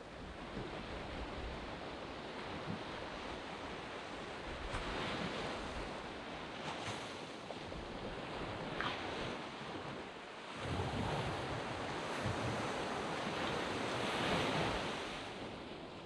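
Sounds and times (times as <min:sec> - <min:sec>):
wind noise on microphone: 0:00.0 - 0:15.9.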